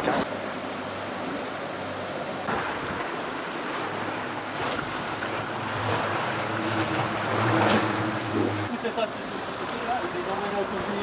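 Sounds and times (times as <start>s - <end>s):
motorboat engine drone: 0.0s - 8.7s
water rushing along hull: 0.0s - 11.0s
wind buffeting microphone: 2.5s - 8.7s.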